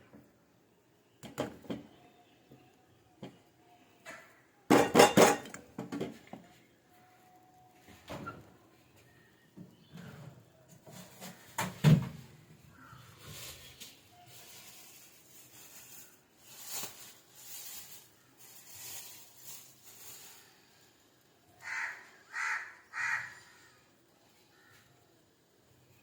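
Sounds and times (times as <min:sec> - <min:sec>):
crow cawing: 0:21.6 - 0:23.9.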